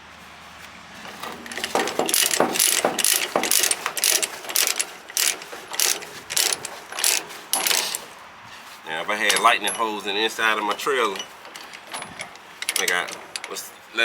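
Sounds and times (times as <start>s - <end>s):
ratchet pawl clicking: 1.0s - 8.2s, 9.2s - 9.9s, 10.6s - 14.0s.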